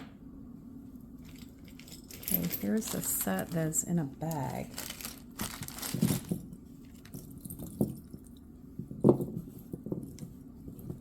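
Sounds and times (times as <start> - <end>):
jewelry in bag knocking and clicking: 4.4 - 11.0.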